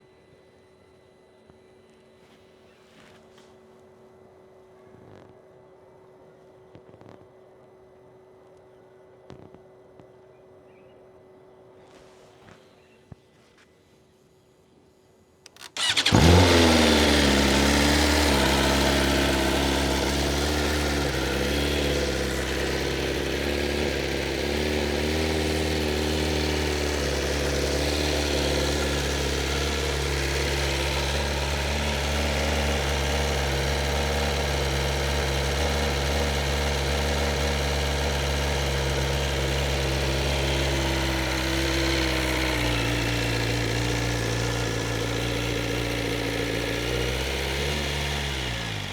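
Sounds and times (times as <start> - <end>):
motorcycle engine starting and idling: 15.5 - 48.9.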